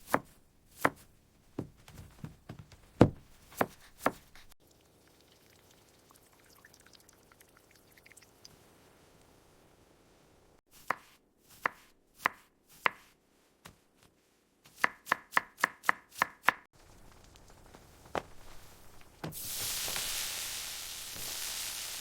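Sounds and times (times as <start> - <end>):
knife chopping on cutting board: 0.0 - 1.7, 3.0 - 4.5, 10.8 - 13.1, 14.7 - 16.6
steady hiss: 16.8 - 22.0.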